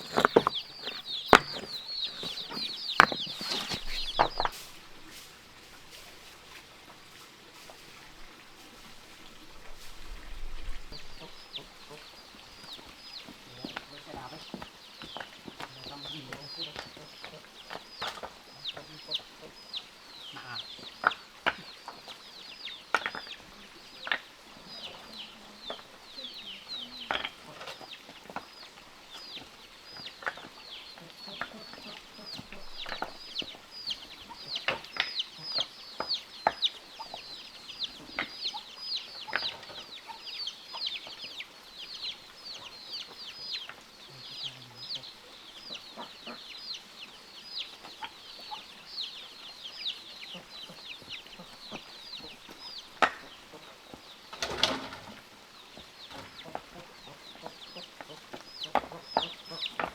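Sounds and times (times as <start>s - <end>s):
sharp knocks and clicks: 0.0s - 3.5s
chickens cheeping: 0.0s - 59.9s.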